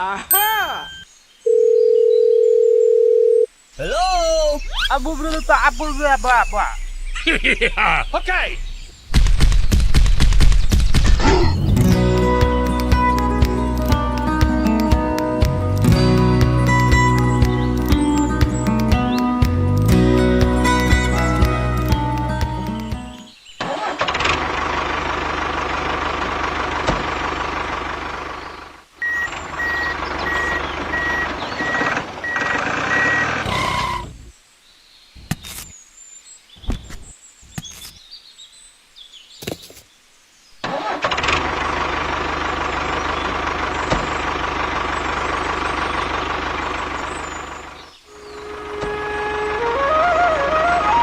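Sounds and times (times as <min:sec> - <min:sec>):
clicks: 0:22.1 - 0:23.0
engine running steadily: 0:23.8 - 0:33.4, 0:40.8 - 0:49.6
reversing alarm beeps: 0:29.0 - 0:34.0.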